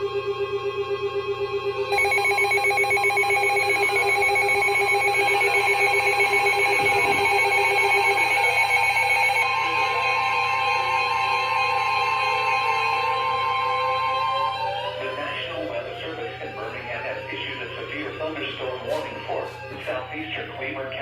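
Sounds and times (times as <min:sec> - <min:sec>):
pulsing electronic alert tones: 0:01.9 - 0:10.1
steady high alert tone: 0:01.9 - 0:20.0.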